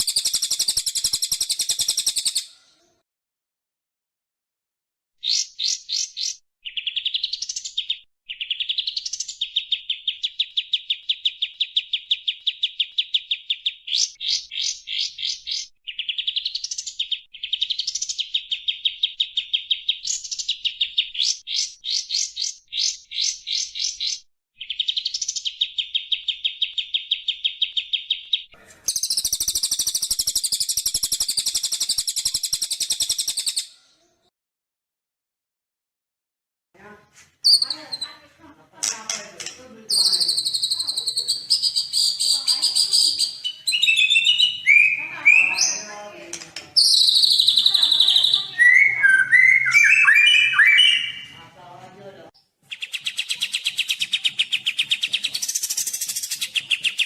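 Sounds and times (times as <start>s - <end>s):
fast bird chips: 0.0s - 2.5s, 24.6s - 33.7s, 46.8s - 51.1s, 52.7s - 57.0s
bird song trills: 0.0s - 2.6s, 5.2s - 33.8s, 37.4s - 38.2s, 38.9s - 46.0s, 46.8s - 51.3s, 52.4s - 57.0s
harsh dense bird chatter: 0.0s - 2.8s, 5.3s - 34.2s, 37.4s - 57.0s.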